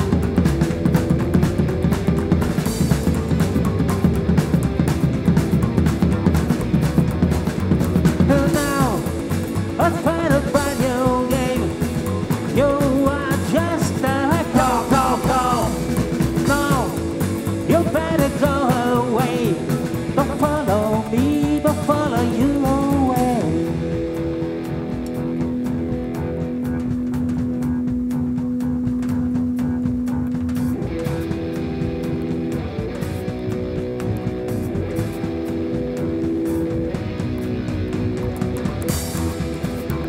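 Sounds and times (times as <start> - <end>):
rock band playing live: 0.0 - 40.0
lead vocalist singing: 8.2 - 23.9.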